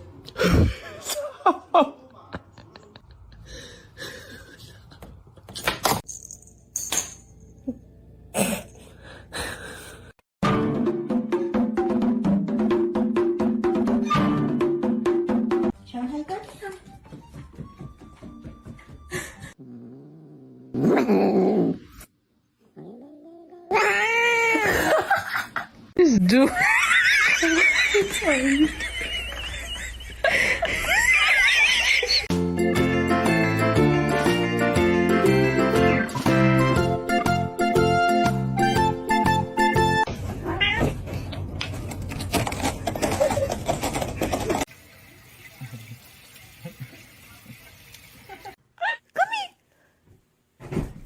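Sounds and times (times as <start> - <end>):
light plucked background music: 10.4 - 19.2, 32.3 - 40.1
cat growling: 19.6 - 24.6
cat yowling and wailing: 23.2 - 24.7, 40.4 - 41.0
cat meowing: 40.4 - 41.0
noise and clatter: 41.5 - 44.7.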